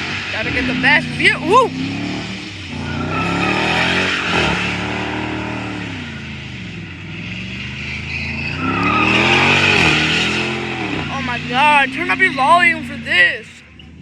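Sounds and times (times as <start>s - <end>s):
car engine revving: 0.0s - 14.0s
tyres squealing: 2.7s - 5.2s, 7.7s - 14.0s.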